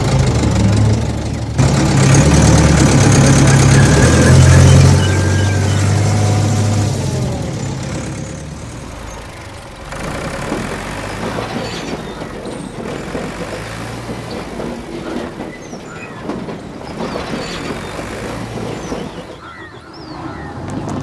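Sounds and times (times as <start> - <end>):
engine idling hum: 0.0 - 16.3
rough engine running: 0.0 - 21.0.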